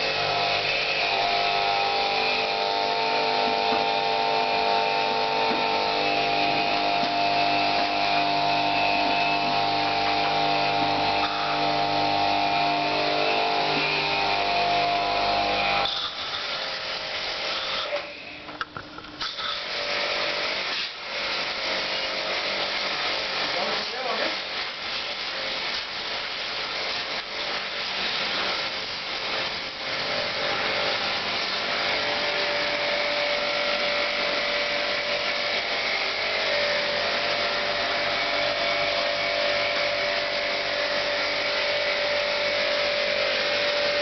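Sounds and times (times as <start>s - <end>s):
pressure washer motor humming: 0.0s - 44.0s
spraying water hiss: 19.2s - 44.0s.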